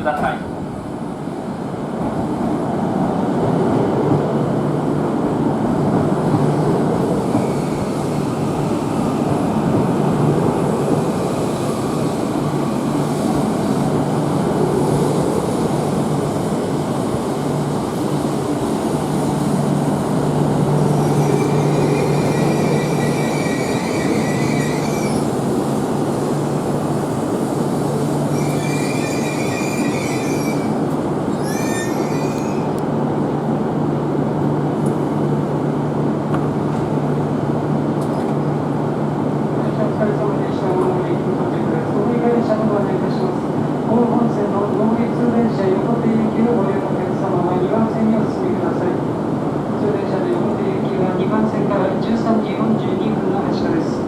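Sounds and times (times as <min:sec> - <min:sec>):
high wheel squeal: 0:20.8 - 0:25.4, 0:28.3 - 0:32.8.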